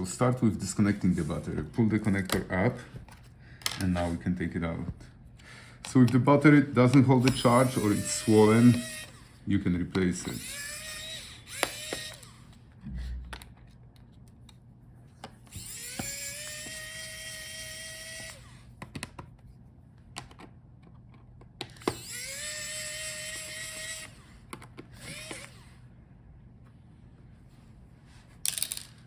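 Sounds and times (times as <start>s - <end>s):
electric screwdriver whining: 6.9s - 9.4s, 10.0s - 12.6s, 15.4s - 18.7s, 21.6s - 25.8s.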